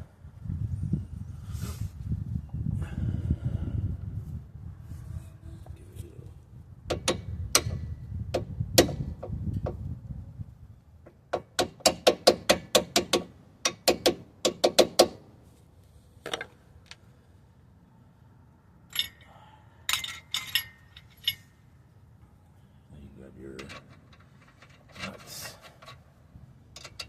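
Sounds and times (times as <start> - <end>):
light metal clinks: 18.9 - 21.6.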